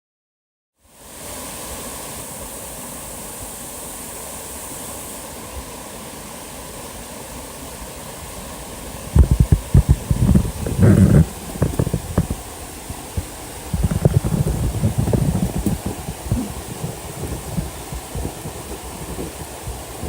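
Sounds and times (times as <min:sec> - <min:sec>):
waterfall rushing: 0:01.0 - 0:20.0
low rumbling thumps: 0:09.2 - 0:12.4, 0:13.2 - 0:20.0.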